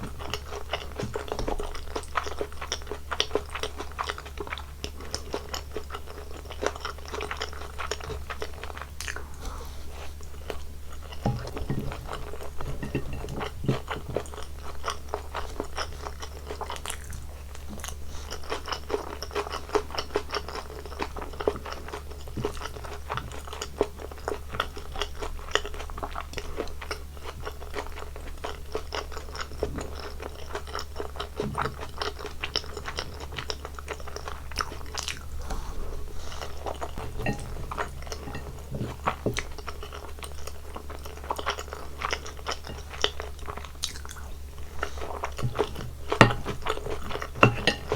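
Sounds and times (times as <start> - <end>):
person chewing and biting food: 24.0 - 47.9.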